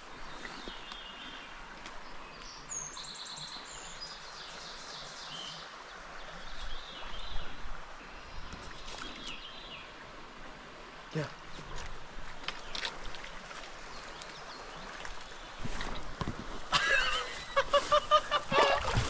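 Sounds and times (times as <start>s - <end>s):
steady background hiss: 16.9s - 19.0s.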